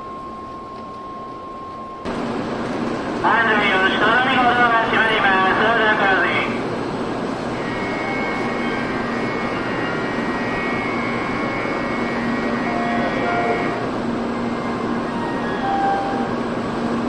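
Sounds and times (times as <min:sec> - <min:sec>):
high steady whine: 0:00.0 - 0:17.0
train humming at platform: 0:00.0 - 0:17.0
platform background noise: 0:03.1 - 0:16.4.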